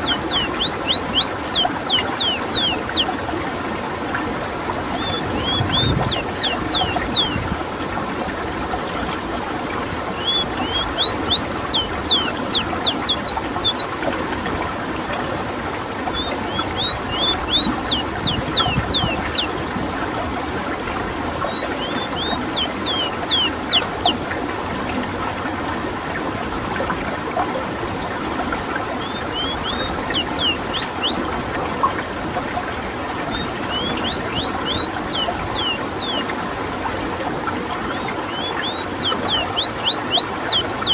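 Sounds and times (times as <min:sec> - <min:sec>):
bird singing whistled phrases: 0:00.0 - 0:03.1, 0:05.0 - 0:07.4, 0:10.2 - 0:14.0, 0:16.1 - 0:19.5, 0:21.5 - 0:24.1, 0:29.0 - 0:31.2, 0:33.3 - 0:36.2, 0:37.9 - 0:40.9.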